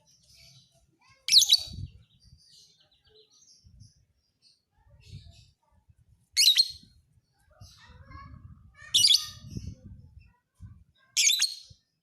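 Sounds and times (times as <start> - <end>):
lovebird chirping: 6.4 - 6.9.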